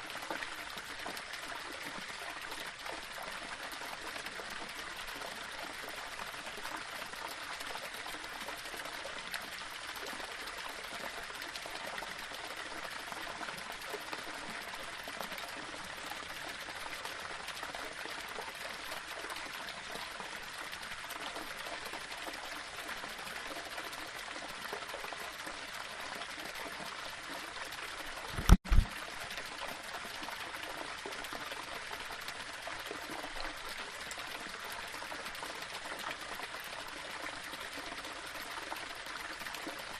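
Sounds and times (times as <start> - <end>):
water splashing over rocks: 28.1 - 29.3
low double thump: 28.4 - 28.9.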